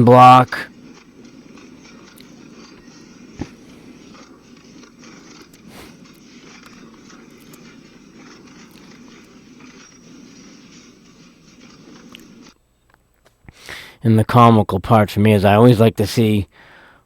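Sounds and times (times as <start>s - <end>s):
shredder grinding metal: 0.0s - 10.8s.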